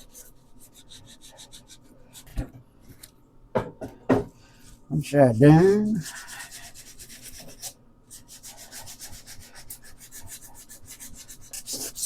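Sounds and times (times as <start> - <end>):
hand sanding metal: 5.4 - 12.0.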